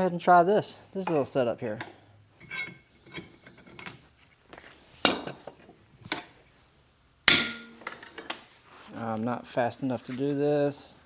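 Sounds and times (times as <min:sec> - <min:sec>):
steel tools clinking: 0:01.0 - 0:04.1, 0:05.0 - 0:06.3, 0:07.3 - 0:08.3
hammer striking steel: 0:07.3 - 0:08.0.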